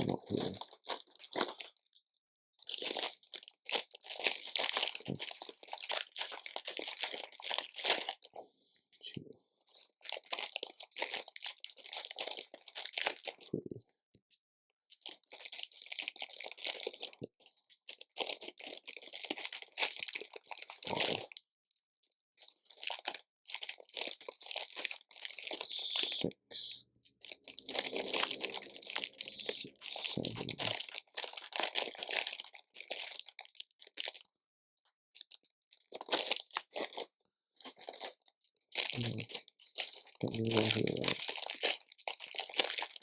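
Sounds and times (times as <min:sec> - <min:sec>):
plastic bags crinkling: 0:00.0 - 0:01.8, 0:02.6 - 0:08.3, 0:09.7 - 0:13.4, 0:15.0 - 0:21.4, 0:22.4 - 0:25.6, 0:27.2 - 0:34.2, 0:35.8 - 0:43.0
hands rummaging through plastic pieces: 0:27.2 - 0:33.0.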